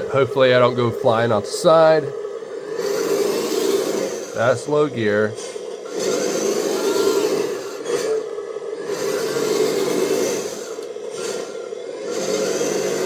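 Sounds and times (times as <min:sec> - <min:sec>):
toy truck electric motor: 0:00.0 - 0:13.0.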